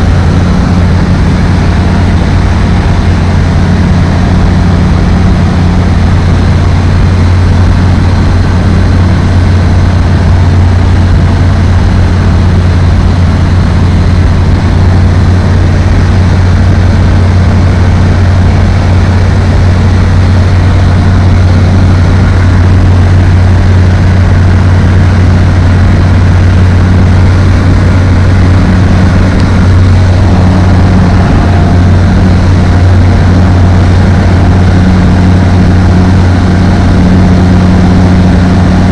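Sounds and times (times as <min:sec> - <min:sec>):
aircraft engine and propeller drone: 0:00.0 - 0:38.9.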